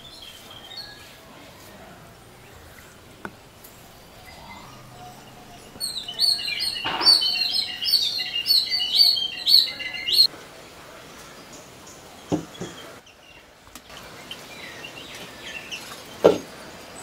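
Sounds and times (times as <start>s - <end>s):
songbird singing high chirps: 0.0s - 1.5s, 2.3s - 10.3s.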